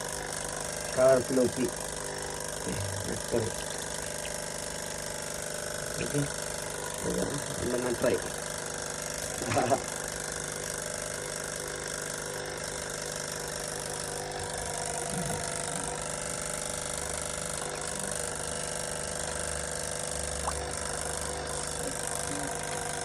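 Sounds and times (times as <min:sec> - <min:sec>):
small machine humming: 0:00.0 - 0:23.0.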